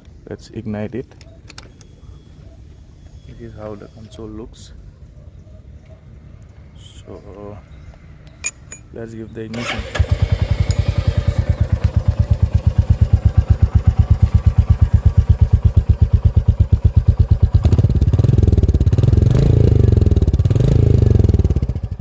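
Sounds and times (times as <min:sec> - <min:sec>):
motorcycle engine starting: 0:09.5 - 0:22.0
engine idling: 0:09.6 - 0:18.9
engine revving: 0:17.6 - 0:22.0.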